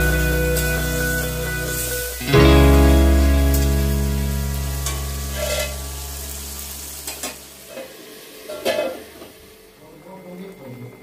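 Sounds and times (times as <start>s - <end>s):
potatoes sizzling in oil: 0.0s - 9.8s
metal spatula scraping pan: 5.2s - 5.8s.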